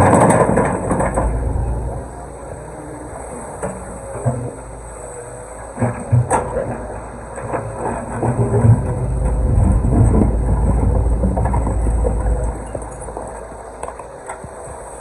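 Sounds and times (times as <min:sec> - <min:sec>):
low rumble: 0:00.0 - 0:03.3, 0:08.1 - 0:13.6
diesel engine running: 0:00.0 - 0:15.0.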